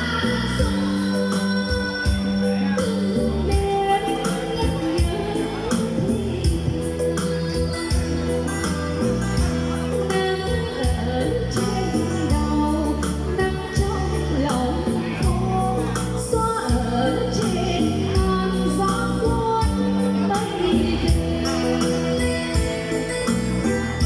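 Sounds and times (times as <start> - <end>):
person singing: 0.0 - 24.0
programmed drum beat: 22.2 - 24.0.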